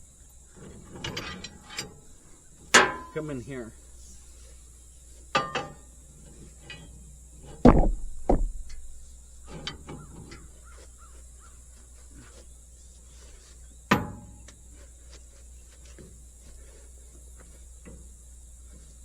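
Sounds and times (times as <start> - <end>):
steady low hum: 0.0 - 19.0
heavy metal knocks and thumps: 2.7 - 3.4, 7.4 - 10.4.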